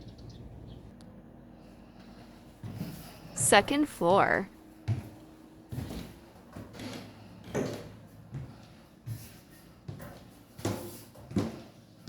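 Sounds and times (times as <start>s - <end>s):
footsteps on stairs: 4.8s - 11.8s.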